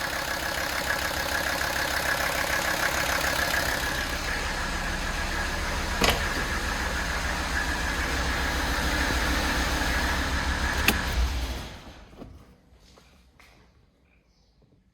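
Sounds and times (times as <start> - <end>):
diesel engine running: 0.0 - 12.2.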